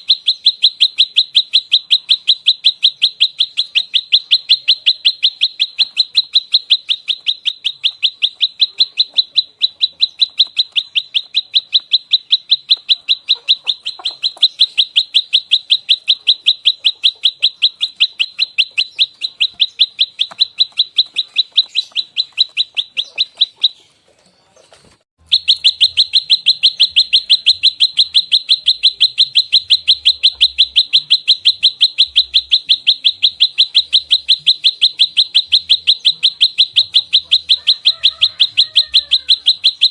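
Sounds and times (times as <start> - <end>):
songbird rapid sharp chirps: 0.0 - 39.9.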